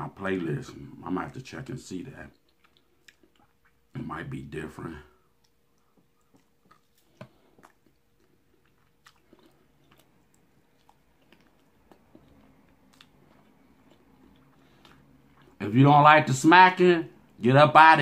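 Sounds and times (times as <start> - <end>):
person chewing and lip-smacking: 2.3 - 3.9, 5.2 - 15.6.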